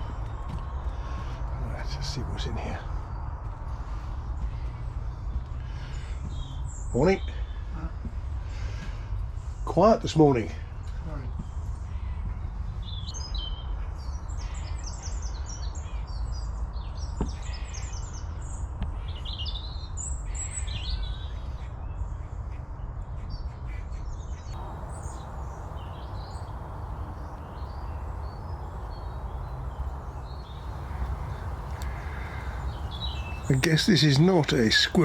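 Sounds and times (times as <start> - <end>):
steady low rumble: 24.6 - 33.9
small birds chirping: 24.6 - 35.0.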